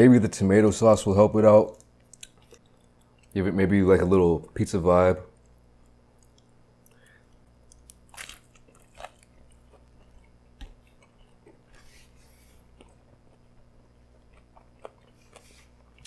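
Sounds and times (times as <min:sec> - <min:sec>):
crunchy biting and chewing: 0:06.2 - 0:16.0.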